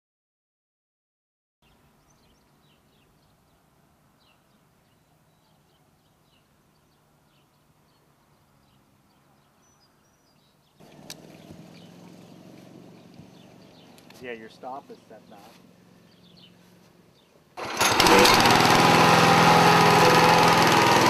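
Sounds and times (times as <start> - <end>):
small birds chirping: 1.6 - 17.6.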